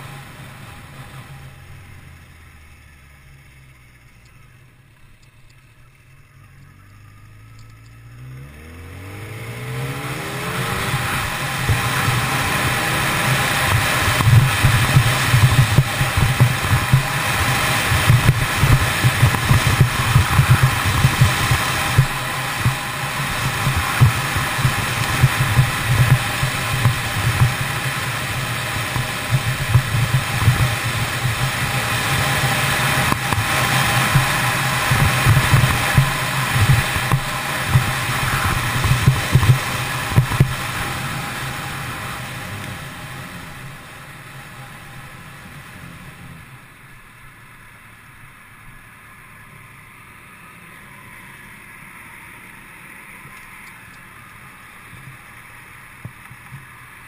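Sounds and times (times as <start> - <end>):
motorcycle engine running: 0.0 - 57.0
wind rush on microphone: 10.0 - 41.8.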